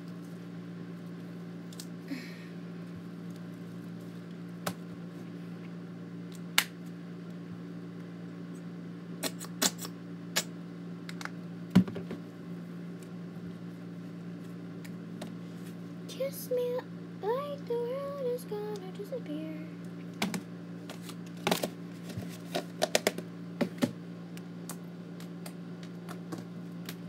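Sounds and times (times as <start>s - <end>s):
air conditioner hum: 0.0s - 27.0s.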